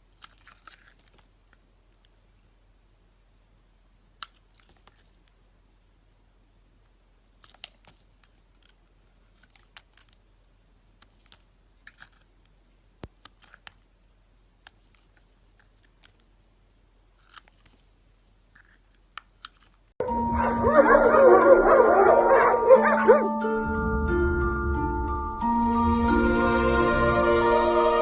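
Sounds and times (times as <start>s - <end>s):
faint crisp crackles: 0.0s - 2.6s, 6.8s - 20.0s.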